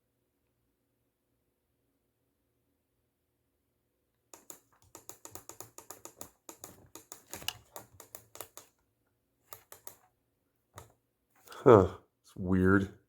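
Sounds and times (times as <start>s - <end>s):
rapid button clicking: 4.4s - 8.7s, 9.5s - 10.0s.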